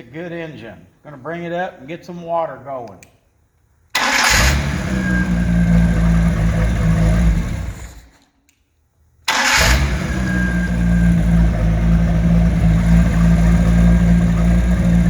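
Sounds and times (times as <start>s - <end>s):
boat engine starting and running: 4.0s - 8.2s, 9.3s - 15.0s.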